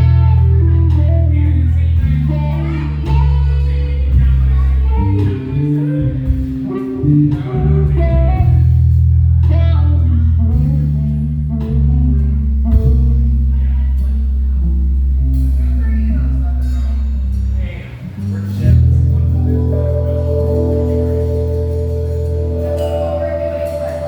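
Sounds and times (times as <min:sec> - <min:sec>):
electric guitar lead: 0:00.0 - 0:13.5, 0:18.7 - 0:24.0
bass guitar notes: 0:00.0 - 0:24.0
drums: 0:00.0 - 0:24.0.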